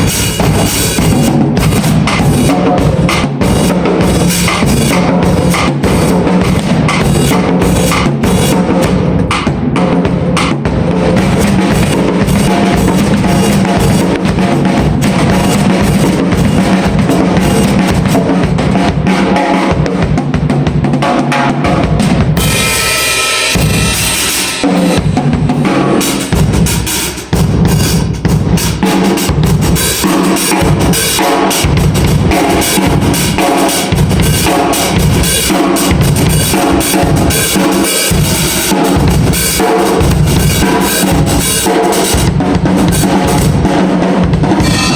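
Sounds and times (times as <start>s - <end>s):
drum kit playing: 0.0s - 44.9s
cymbals washing: 22.4s - 25.1s, 26.0s - 43.6s, 44.6s - 44.9s.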